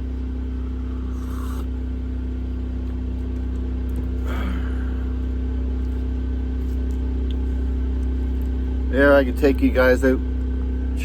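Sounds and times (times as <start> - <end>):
generator humming: 0.0 - 11.0.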